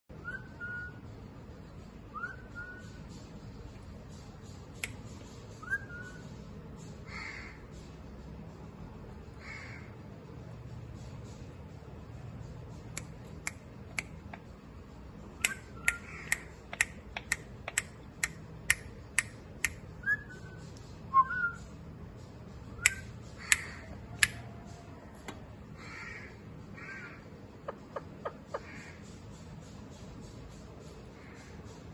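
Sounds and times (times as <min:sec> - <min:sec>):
sharp clicks: 0:15.4 - 0:20.0, 0:22.8 - 0:24.5
parrot chirps and squawks: 0:25.8 - 0:29.0.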